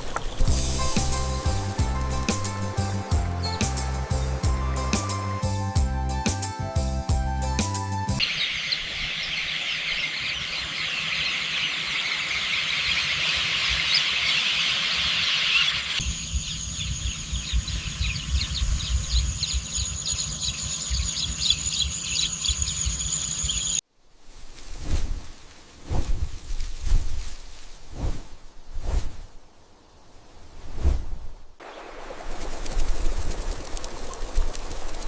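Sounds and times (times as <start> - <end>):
high whine with pulsing chirps: 8.2 - 23.8
wind rumble on microphone: 16.0 - 21.5.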